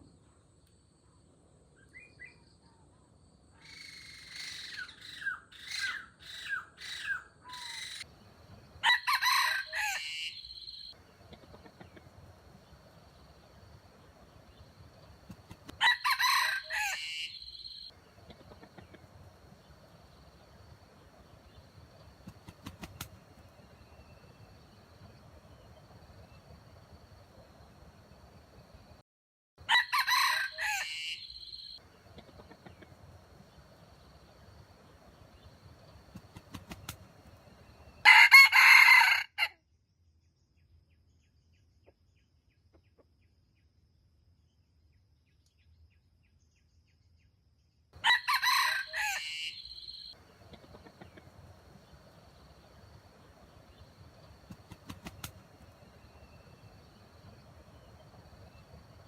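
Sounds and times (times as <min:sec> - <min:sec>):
rooster crowing: 0:08.8 - 0:10.8, 0:15.8 - 0:17.8, 0:29.6 - 0:31.8, 0:38.0 - 0:39.5, 0:48.0 - 0:50.2.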